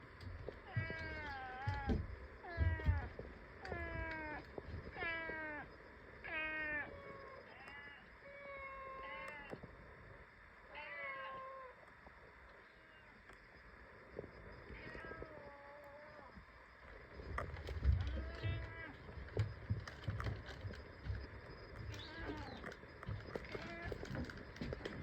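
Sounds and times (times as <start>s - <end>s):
cat meowing: 0.7s - 4.4s, 6.3s - 9.6s, 18.0s - 19.0s, 21.9s - 22.6s, 23.5s - 24.1s.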